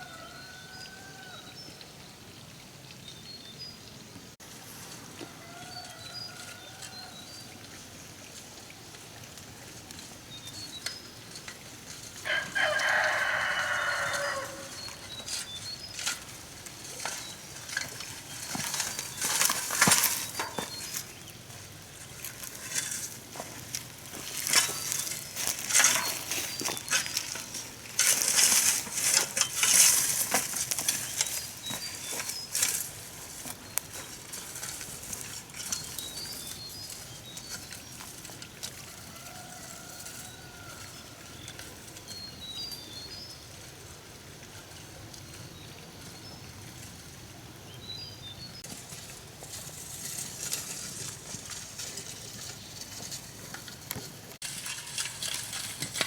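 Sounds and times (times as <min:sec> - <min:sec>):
rooster crowing: 0:00.0 - 0:01.6, 0:05.2 - 0:07.3, 0:12.2 - 0:15.0, 0:38.9 - 0:41.4
crackling rustling clicks: 0:13.9 - 0:21.2, 0:21.8 - 0:39.3, 0:48.6 - 0:56.0.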